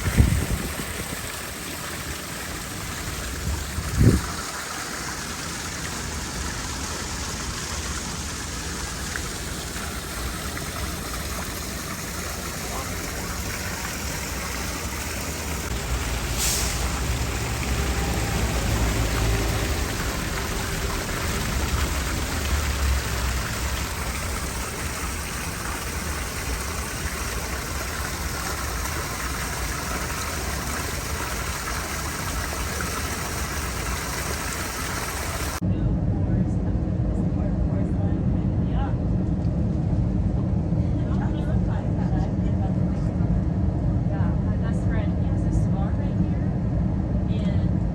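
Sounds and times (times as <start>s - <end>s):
low engine rumble: 0.0s - 47.9s
rushing hiss: 13.5s - 20.7s.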